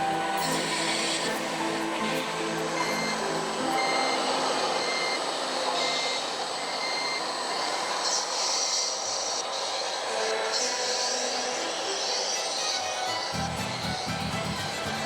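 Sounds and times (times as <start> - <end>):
high reversing beeps: 0.0 - 11.0.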